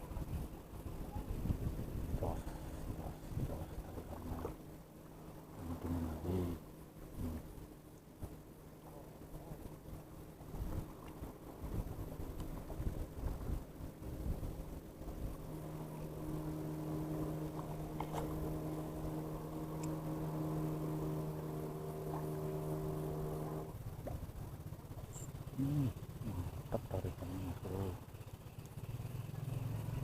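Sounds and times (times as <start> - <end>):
wind buffeting microphone: 0.0 - 4.7, 9.2 - 19.4
engine running steadily: 0.0 - 30.0.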